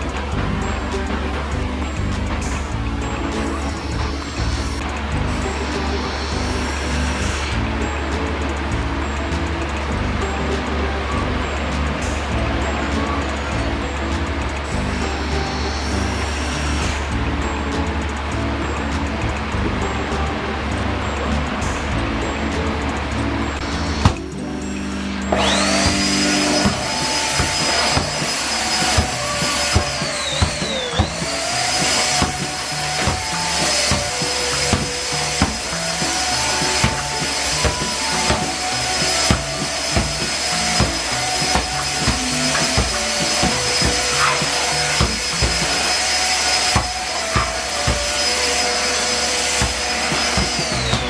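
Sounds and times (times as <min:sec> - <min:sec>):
background music with steady beat: 0:00.0 - 0:51.0
handheld vacuum cleaner whine: 0:25.3 - 0:51.0.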